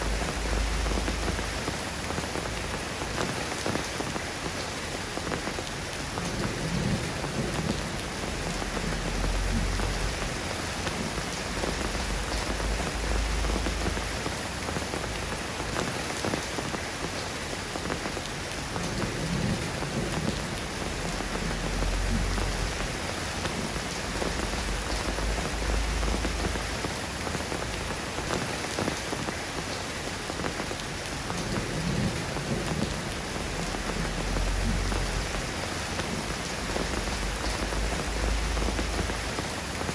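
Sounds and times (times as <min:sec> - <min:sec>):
soft rain falling: 0:00.0 - 0:39.9
thunder rumbling: 0:06.2 - 0:14.4, 0:18.7 - 0:28.0, 0:31.3 - 0:39.9.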